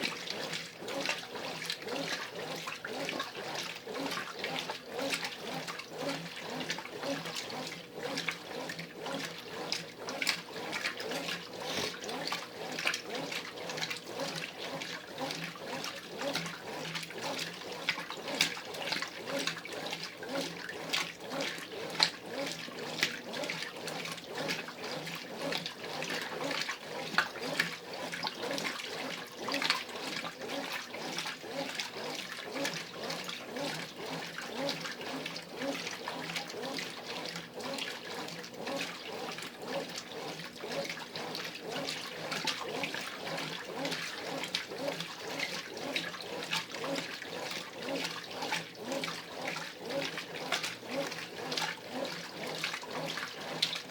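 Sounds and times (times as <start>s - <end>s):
washing machine water sloshing: 0.0s - 53.9s.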